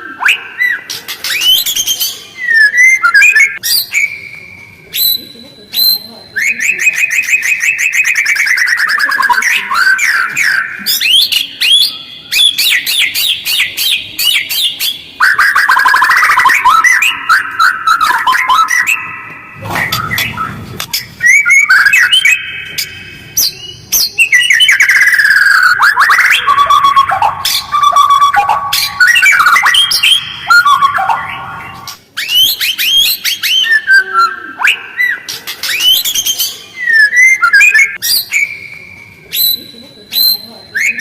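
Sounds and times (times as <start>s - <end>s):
bird singing rattling song: 0.6s - 34.0s, 35.0s - 41.0s.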